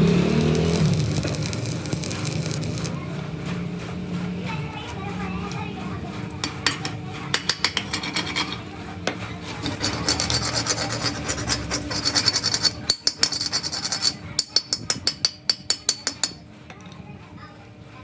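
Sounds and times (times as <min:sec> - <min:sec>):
rapid rasping strokes: 0:00.0 - 0:03.0, 0:09.5 - 0:15.0.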